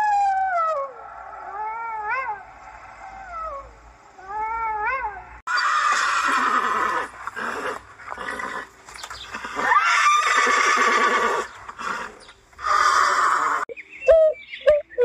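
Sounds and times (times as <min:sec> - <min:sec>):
horses neighing: 0:05.5 - 0:13.7.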